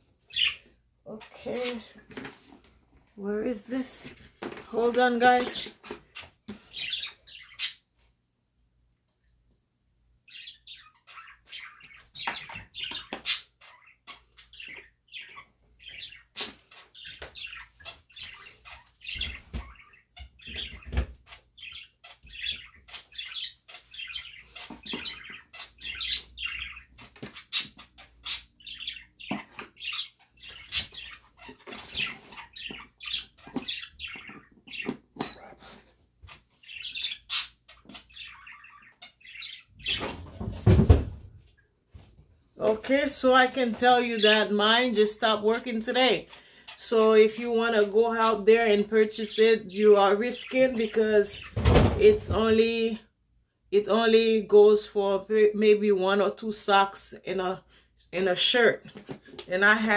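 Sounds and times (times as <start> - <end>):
small bird chirping: 0.0 - 2.3, 4.8 - 7.9, 10.2 - 40.4
knocks and thumps of handling: 39.9 - 41.3.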